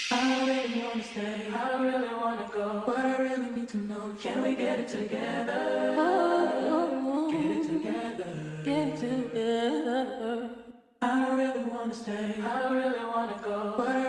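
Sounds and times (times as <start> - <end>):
low held tone: 0.0 - 2.6
person singing: 0.0 - 10.4.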